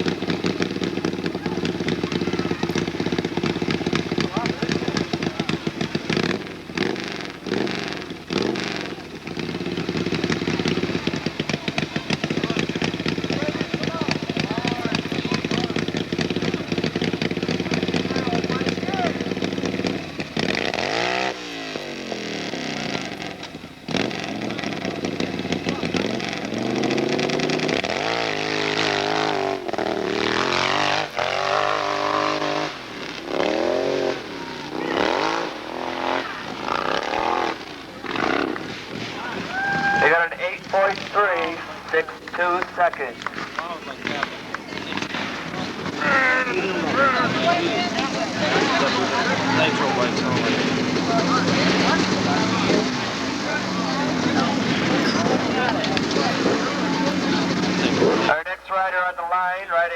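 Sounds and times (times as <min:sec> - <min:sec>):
motorcycle engine revving and idling: 0:00.0 - 0:58.5.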